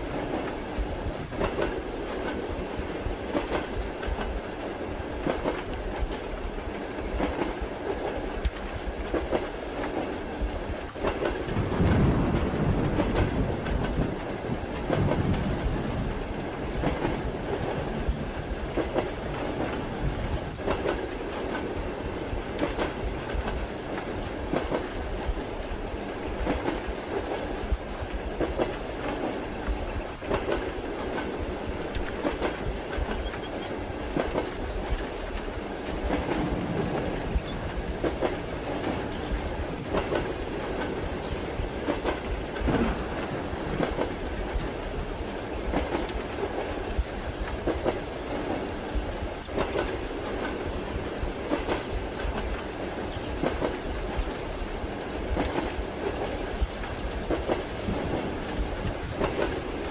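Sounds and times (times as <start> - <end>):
rain hiss: 0.0 - 59.9
train carriage rumble: 0.0 - 59.9
steady rolling rumble: 11.5 - 20.6.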